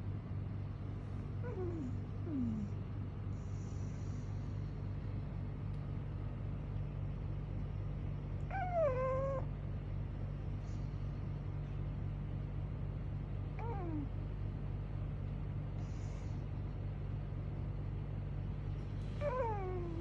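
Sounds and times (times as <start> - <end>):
dog whimper: 1.4 - 2.8, 8.5 - 9.5, 13.6 - 14.2, 19.2 - 20.0
dog snoring: 1.4 - 4.9, 15.7 - 16.5, 19.2 - 20.0.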